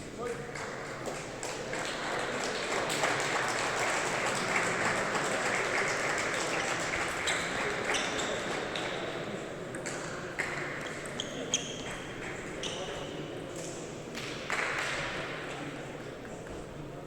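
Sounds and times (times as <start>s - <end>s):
audience applauding: 1.1s - 7.9s.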